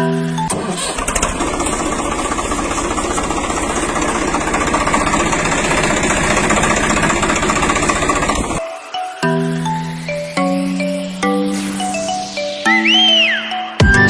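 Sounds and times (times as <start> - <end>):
engine idling with chugging pulse: 0.0 - 8.6.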